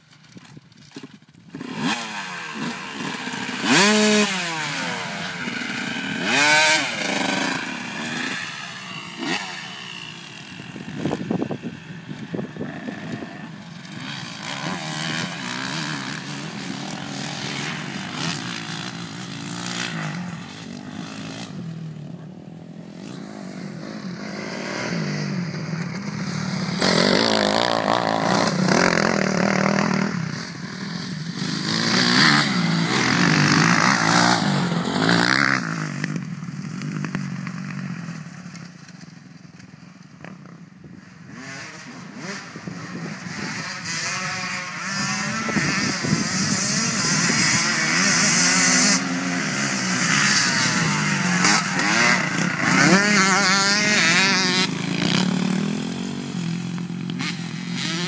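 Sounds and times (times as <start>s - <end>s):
motorcycle engine revving: 1.5s - 58.0s.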